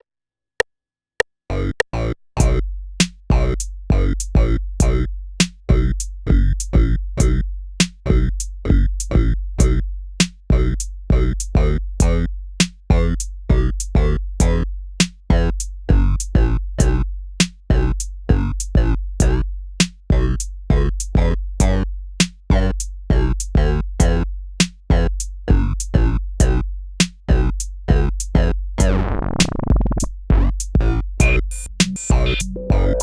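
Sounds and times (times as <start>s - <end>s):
sustained synth bass: 1.5s - 2.7s, 3.3s - 5.1s, 5.7s - 7.5s, 8.1s - 9.8s, 10.5s - 12.3s, 12.9s - 14.7s, 15.3s - 17.1s, 17.7s - 19.5s, 20.1s - 21.9s, 22.5s - 24.3s, 24.9s - 26.7s, 27.3s - 33.0s
drum machine beat: 2.4s - 33.0s.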